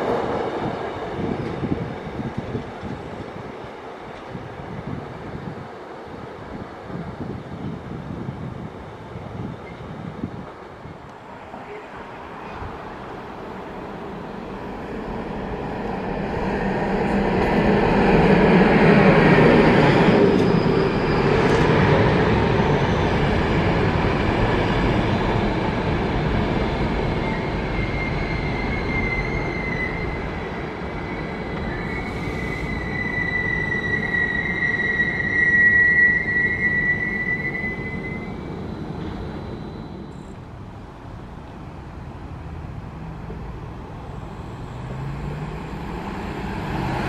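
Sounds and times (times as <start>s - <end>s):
high steady squeal from train: 0.0s - 41.1s, 43.3s - 47.0s
passenger train rolling past: 0.0s - 47.0s.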